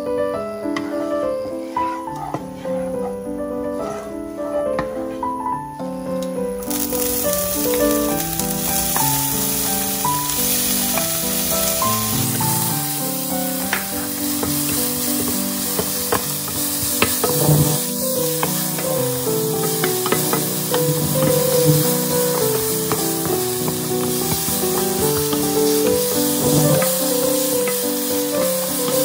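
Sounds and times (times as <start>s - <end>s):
piano music: 0.0s - 29.0s
wooden spatula scraping pan: 0.9s - 4.2s, 6.6s - 29.0s
vegetables sizzling in hot oil: 6.6s - 29.0s.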